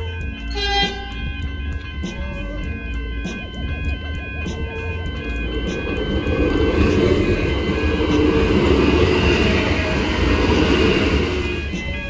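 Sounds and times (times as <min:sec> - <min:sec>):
train wheels rumbling on rails: 0:03.2 - 0:12.0.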